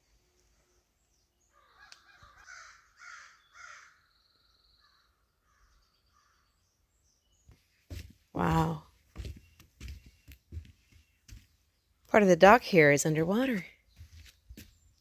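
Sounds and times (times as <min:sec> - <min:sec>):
crow cawing: 0:01.5 - 0:04.1, 0:04.8 - 0:06.5.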